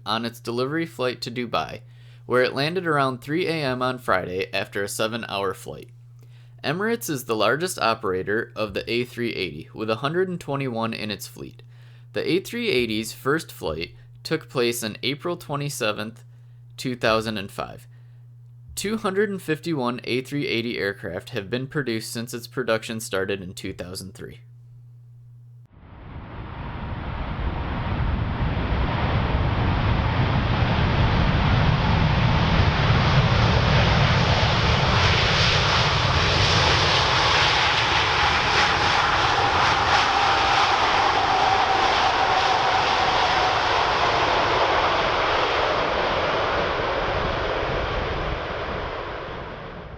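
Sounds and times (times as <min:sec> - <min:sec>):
jet engines roaring: 0:25.8 - 0:49.9
thin whine sliding down: 0:25.8 - 0:49.9.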